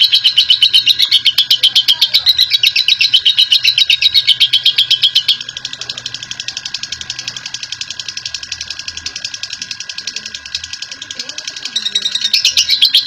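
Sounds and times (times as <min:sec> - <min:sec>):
lovebird chattering trill: 0:00.0 - 0:13.0.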